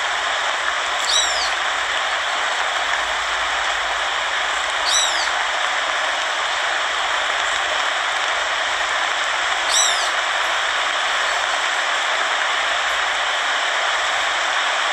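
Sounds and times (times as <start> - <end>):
high falling animal call: 0.0 - 5.5, 9.7 - 10.2
heavy rain: 0.0 - 14.9.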